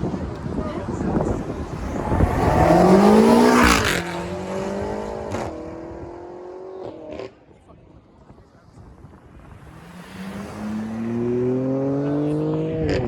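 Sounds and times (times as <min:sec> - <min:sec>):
car engine revving: 0:01.1 - 0:07.3, 0:09.3 - 0:13.0.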